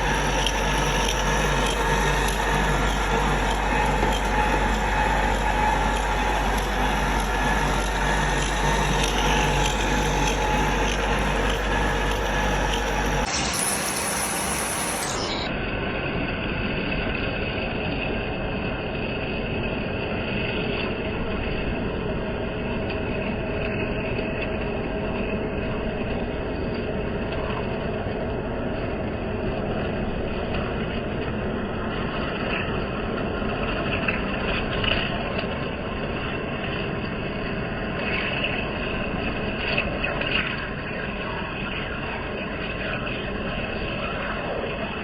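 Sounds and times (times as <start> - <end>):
metal lathe running: 0.0 - 15.5.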